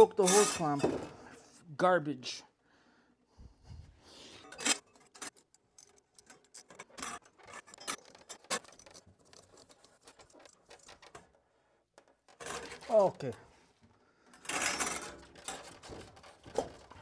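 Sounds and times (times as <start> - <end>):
small metal parts clinking: 4.4 - 11.4.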